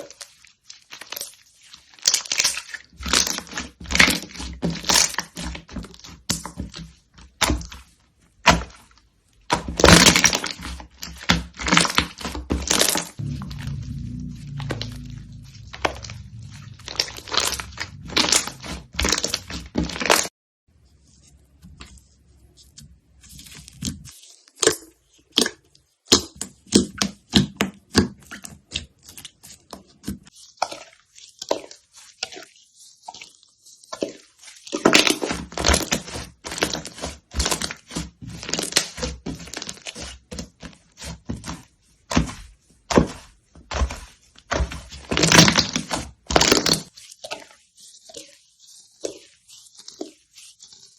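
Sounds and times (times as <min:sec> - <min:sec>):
slime crackling and popping: 0:09.7 - 0:20.3, 0:43.7 - 0:46.9.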